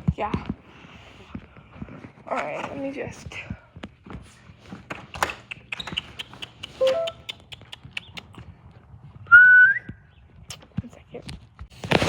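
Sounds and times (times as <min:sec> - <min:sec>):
person calling: 0:06.0 - 0:07.8
high whistle: 0:06.8 - 0:07.2, 0:09.3 - 0:10.0.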